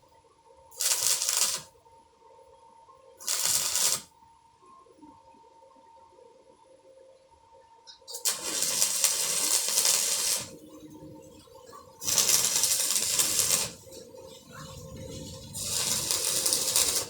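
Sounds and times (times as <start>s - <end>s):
electric arc welding crackling: 0.8s - 1.7s, 3.2s - 4.1s, 8.1s - 17.0s.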